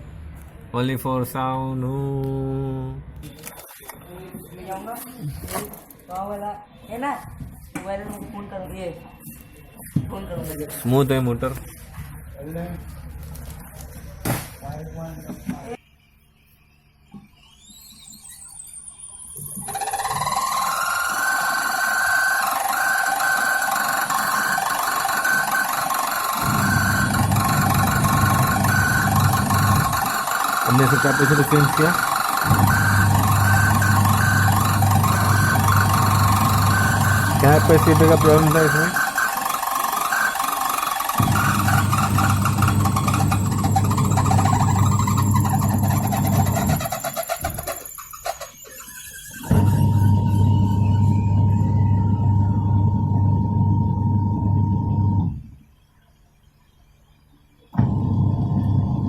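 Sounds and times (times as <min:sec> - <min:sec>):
washing machine motor whining: 0:19.4 - 0:55.4, 0:57.8 - 0:59.0
wavering squeal: 0:41.3 - 0:52.3.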